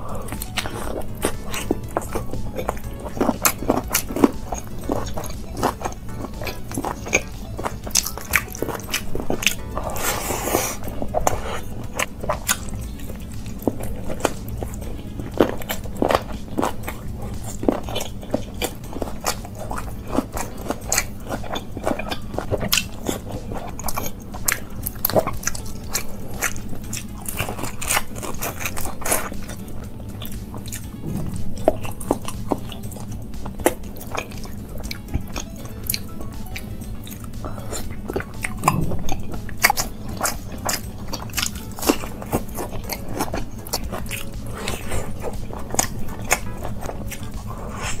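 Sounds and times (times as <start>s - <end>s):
wet chewing: 0.0s - 48.0s.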